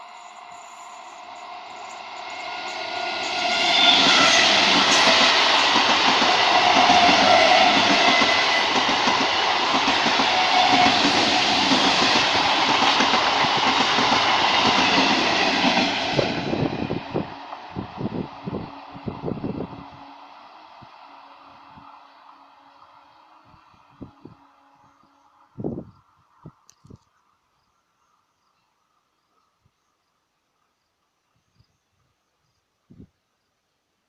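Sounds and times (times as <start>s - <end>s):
electric train passing: 0.0s - 26.5s
train wheels clickety-clack: 1.3s - 18.0s.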